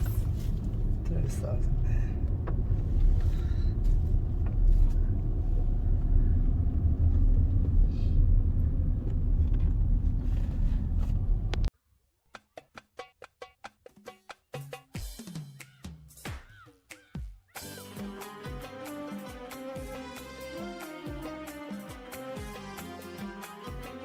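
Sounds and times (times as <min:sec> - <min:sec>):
car driving rumble: 0:00.0 - 0:11.7
music: 0:12.3 - 0:24.0.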